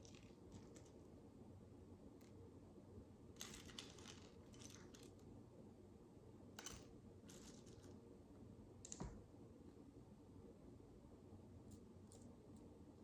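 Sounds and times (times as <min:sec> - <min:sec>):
quiet room hum: 0:00.0 - 0:13.0.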